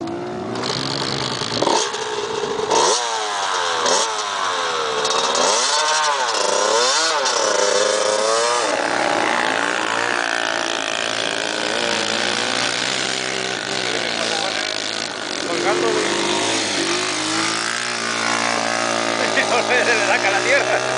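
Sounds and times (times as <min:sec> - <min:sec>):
dirt bike engine revving: 0:00.0 - 0:20.9.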